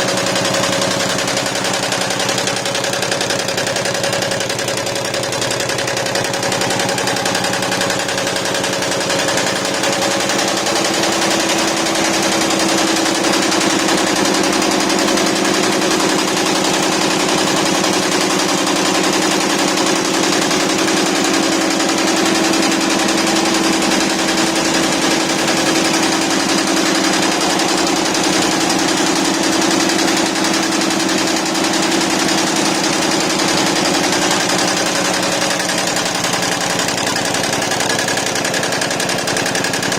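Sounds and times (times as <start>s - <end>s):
embroidery machine clattering: 0.0s - 39.9s.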